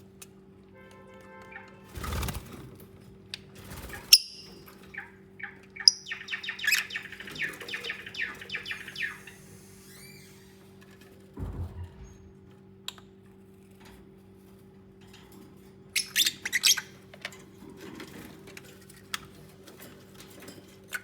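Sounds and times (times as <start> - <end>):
lovebirds chirping: 3.8 - 10.4
steady low hum: 11.4 - 12.8.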